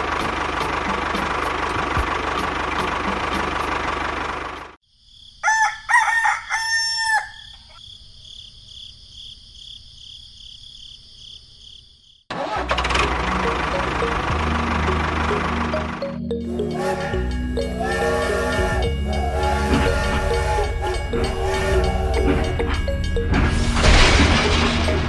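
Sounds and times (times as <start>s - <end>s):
rooster crowing: 5.4s - 7.8s, 16.5s - 23.0s
high-pitched pulsing buzz: 13.2s - 24.8s
small motor running: 16.6s - 22.9s.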